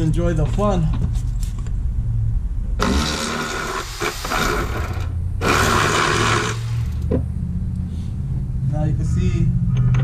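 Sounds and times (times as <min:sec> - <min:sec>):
power ratchet wrench whirring: 0:02.8 - 0:07.1.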